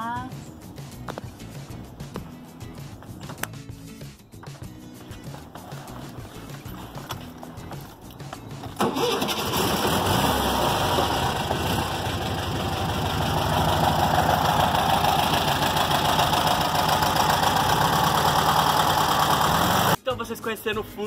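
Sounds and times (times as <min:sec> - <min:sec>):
car engine idling: 0:04.4 - 0:20.0.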